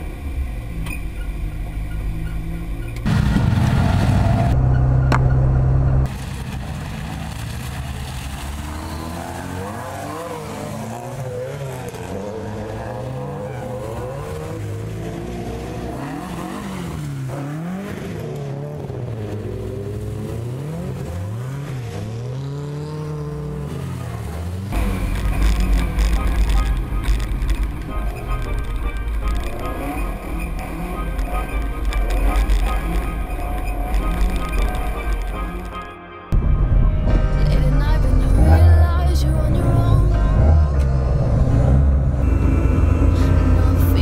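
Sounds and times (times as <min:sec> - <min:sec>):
rally car engines revving: 0:00.0 - 0:36.7, 0:37.4 - 0:44.0
loud steady drone: 0:01.7 - 0:06.6, 0:24.7 - 0:44.0.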